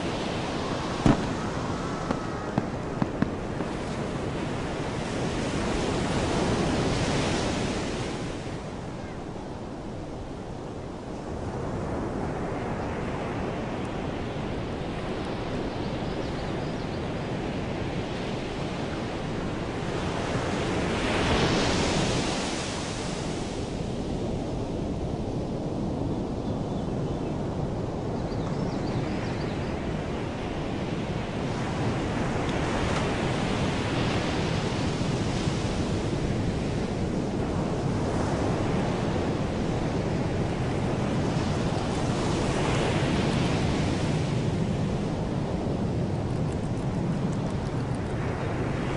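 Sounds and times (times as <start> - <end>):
sea waves washing in: 0.0 - 12.4, 29.9 - 48.9.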